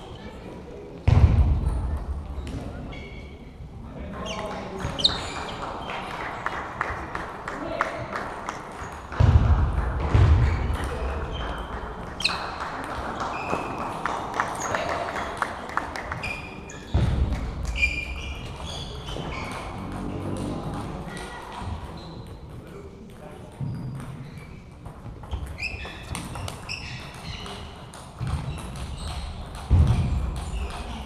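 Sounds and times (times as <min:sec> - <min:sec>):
background chatter: 0:00.0 - 0:09.2, 0:10.6 - 0:28.3
table tennis balls clicking: 0:18.4 - 0:22.7.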